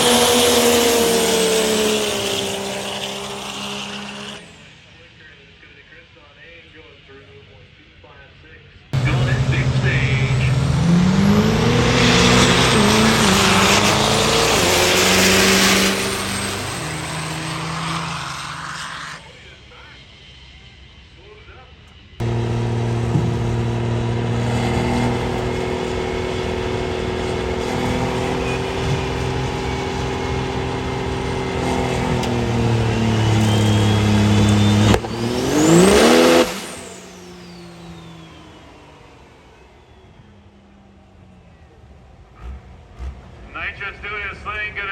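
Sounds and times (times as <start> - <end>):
diesel truck engine at full throttle: 0.0 - 5.4, 9.0 - 21.0, 22.1 - 44.9
high whine: 9.0 - 18.7, 22.2 - 38.6.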